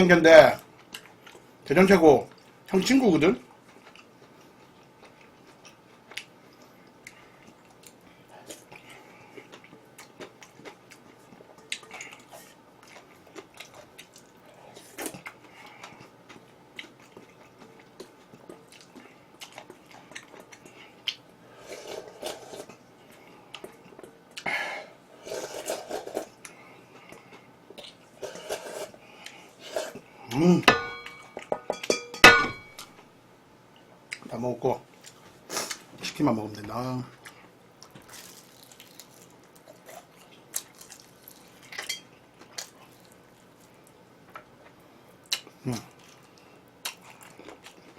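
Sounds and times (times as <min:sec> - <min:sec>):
person chewing food: 0:03.6 - 0:24.5, 0:37.2 - 0:47.9.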